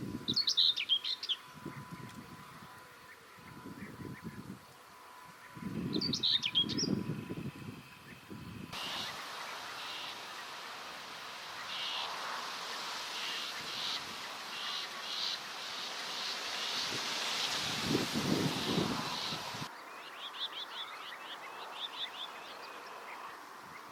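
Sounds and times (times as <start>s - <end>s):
bird singing high phrases: 0.3s - 2.0s, 5.5s - 7.1s, 8.8s - 10.6s
outdoor hiss: 6.2s - 23.9s.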